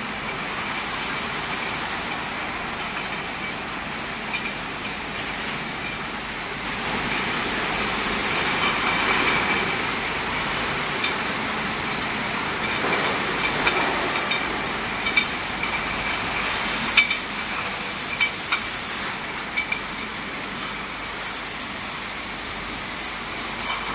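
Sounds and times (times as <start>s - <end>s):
bottle-washing machine running: 0.0s - 23.9s
spray hiss: 0.6s - 2.2s, 7.6s - 9.8s, 16.4s - 19.3s.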